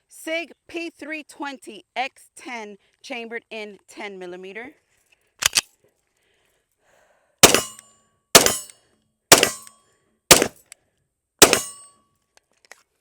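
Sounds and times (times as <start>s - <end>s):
pistol shots: 7.4s - 7.8s, 8.4s - 8.7s, 9.3s - 9.7s, 10.3s - 10.6s, 11.4s - 11.8s
brief metallic ring: 11.5s - 12.0s.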